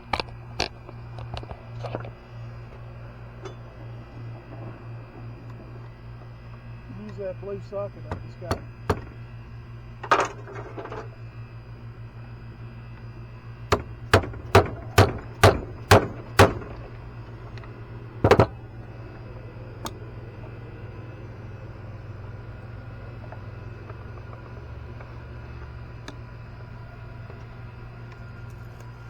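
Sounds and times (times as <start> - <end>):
steady low hum: 0.0 - 29.0
hammer striking metal: 13.7 - 16.8.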